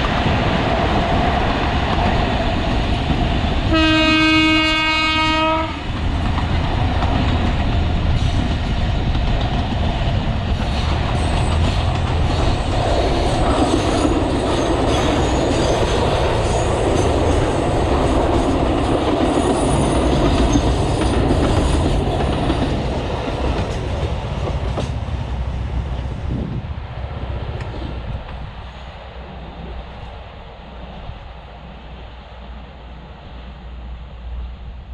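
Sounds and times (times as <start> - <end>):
diesel locomotive engine rumble: 0.0 - 34.9
train horn blast: 3.7 - 5.9
train wheels clattering on rails: 5.8 - 26.3
high wheel squeal: 13.7 - 17.9.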